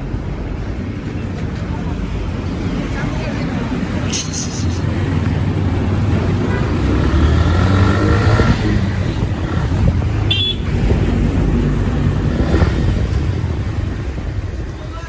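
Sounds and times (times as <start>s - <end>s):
motorcycle engine and road rumble: 0.0s - 15.0s
vehicle horn: 10.3s - 10.8s.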